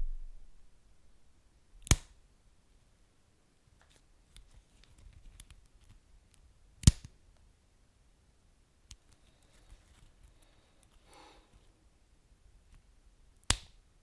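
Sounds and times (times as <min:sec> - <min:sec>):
sharp pops from burning logs: 0:13.5 - 0:13.7.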